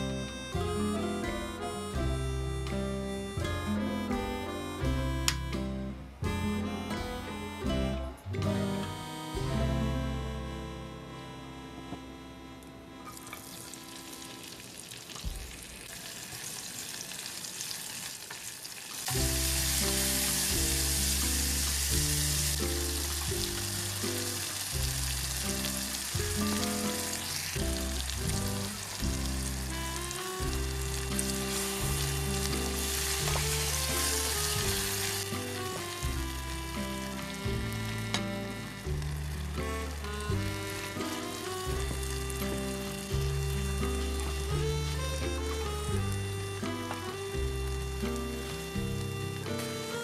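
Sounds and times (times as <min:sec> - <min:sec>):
background music: 0:00.0 - 0:14.8, 0:19.1 - 0:50.0
onions sizzling in oil: 0:13.4 - 0:29.8, 0:30.4 - 0:36.3, 0:41.0 - 0:44.4.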